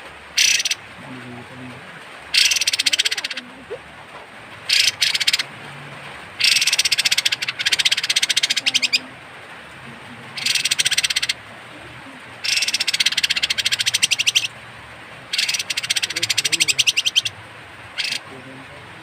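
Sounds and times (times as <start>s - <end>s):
bird harsh rattling calls: 0.0s - 0.9s, 2.3s - 3.5s, 4.6s - 5.5s, 6.4s - 9.0s, 10.4s - 11.4s, 12.4s - 14.6s, 15.2s - 18.4s.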